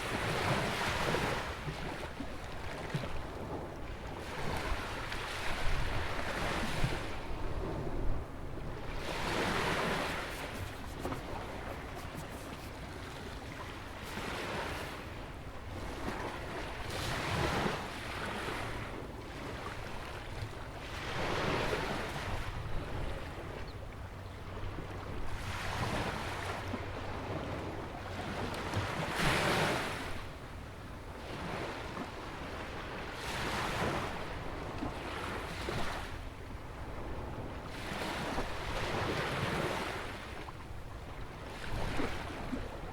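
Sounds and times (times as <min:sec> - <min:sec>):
small waves breaking: 0:00.0 - 0:23.3, 0:41.1 - 0:42.9.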